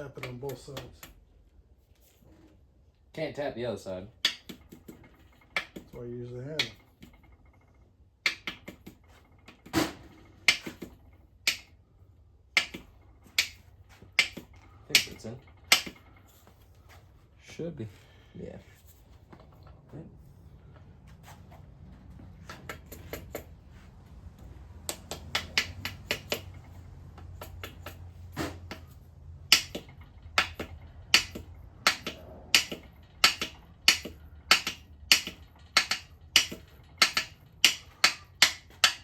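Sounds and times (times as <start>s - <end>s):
hammer tapping metal part: 4.2s - 6.0s, 6.6s - 7.4s, 8.2s - 11.8s, 12.5s - 16.2s, 22.5s - 23.5s, 24.8s - 39.0s.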